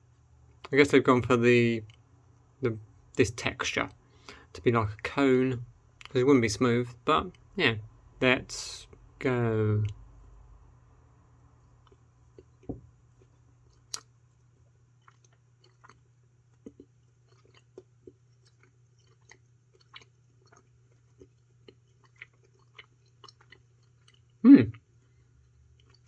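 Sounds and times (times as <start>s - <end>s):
person chewing sweets: 0.0s - 6.2s, 11.6s - 26.0s
faint low hum: 0.0s - 26.0s.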